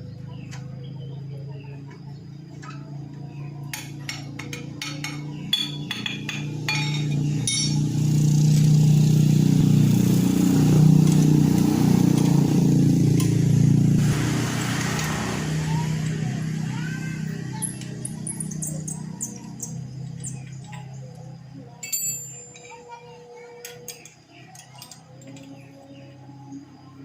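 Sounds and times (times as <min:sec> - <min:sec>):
metallic clinks and taps: 0:03.8 - 0:07.8, 0:21.8 - 0:22.9.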